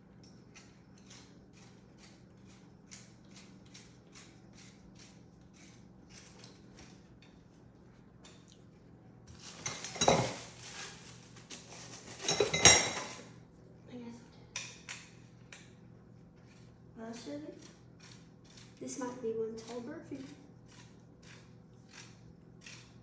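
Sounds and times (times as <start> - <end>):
hard parts clattering and scraping: 9.4 - 13.3.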